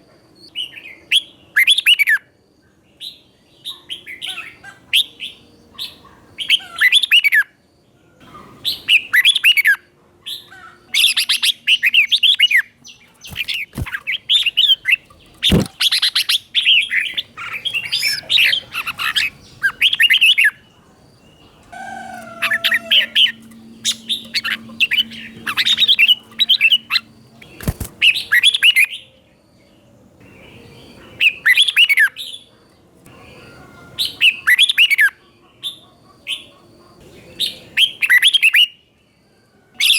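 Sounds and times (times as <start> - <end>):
bird singing warbled phrases: 8.2 - 29.2, 30.2 - 32.5.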